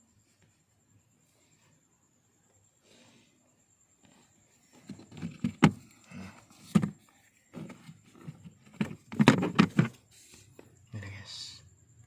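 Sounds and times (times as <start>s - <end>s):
carpet rustling and handling: 4.0s - 10.8s.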